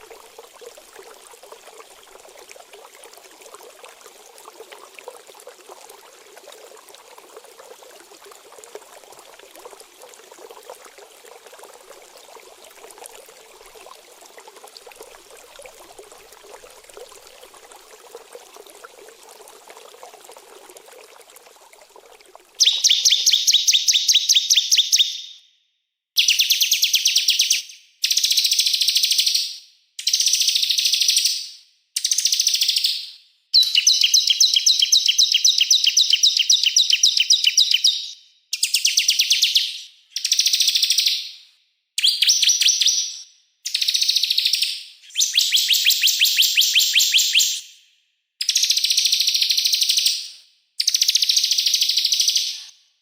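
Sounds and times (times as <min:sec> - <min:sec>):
water trickling: 0:00.0 - 0:23.5.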